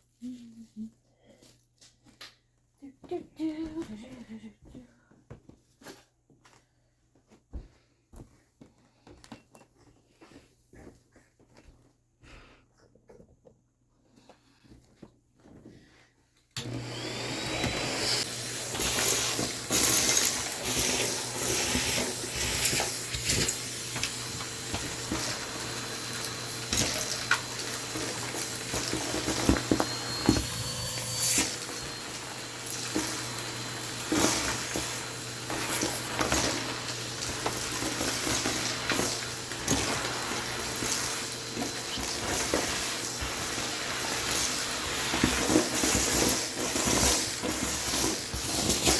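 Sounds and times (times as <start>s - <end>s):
debris rattling into vacuum: 16.6s - 48.9s
vacuum cleaner running: 16.6s - 48.9s.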